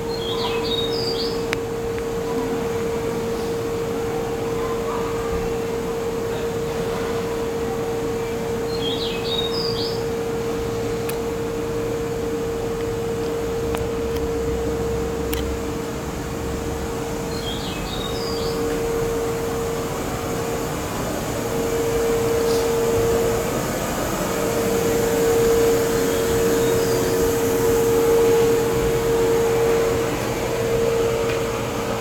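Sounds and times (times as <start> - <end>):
train running rumble: 0.0 - 32.0.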